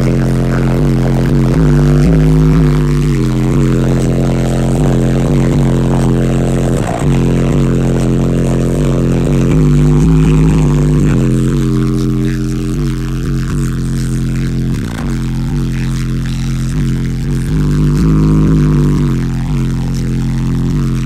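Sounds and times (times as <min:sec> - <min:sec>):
subwoofers playing deep bass: 0:00.0 - 0:21.0.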